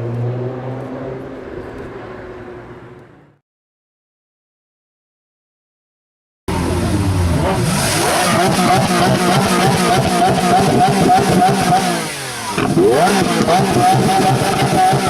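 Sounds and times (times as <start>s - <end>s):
supercar engine revving: 6.5s - 15.0s.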